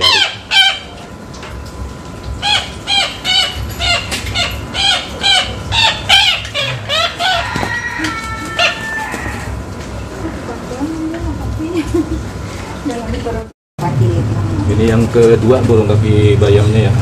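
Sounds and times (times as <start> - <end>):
bird yelping calls: 0.0 - 1.0, 2.4 - 9.4.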